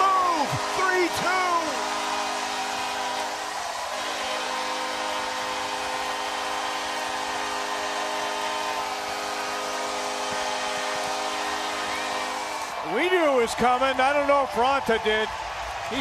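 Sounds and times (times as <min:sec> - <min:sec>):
multi-note goal horn: 0:00.0 - 0:12.8
crowd cheering: 0:00.0 - 0:16.0.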